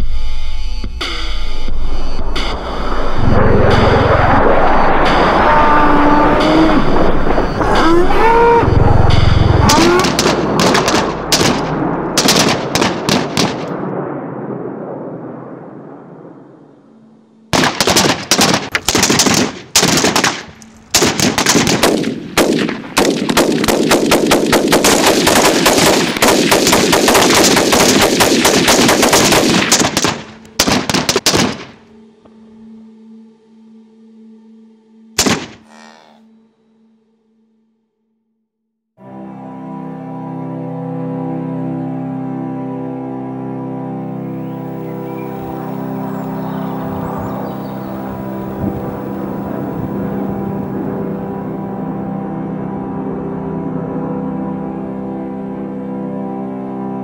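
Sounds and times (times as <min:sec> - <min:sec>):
machine-gun fire: 0:09.9 - 0:13.9, 0:17.6 - 0:31.8.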